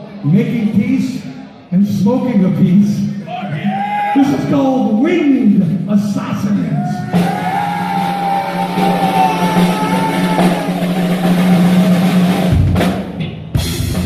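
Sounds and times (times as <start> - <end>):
live heavy metal band: 7.0 - 14.0.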